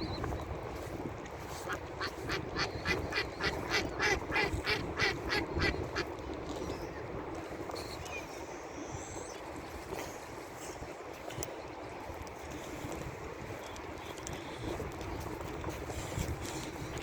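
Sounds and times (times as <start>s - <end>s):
wind rumble: 0.0s - 17.0s
duck quacking: 1.7s - 6.0s.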